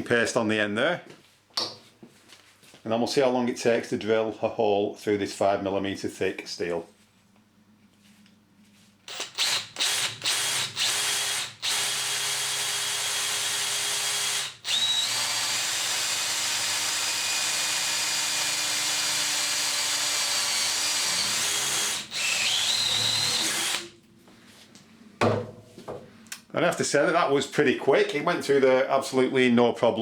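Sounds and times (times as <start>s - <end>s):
power drill boring through steel: 9.1s - 23.9s.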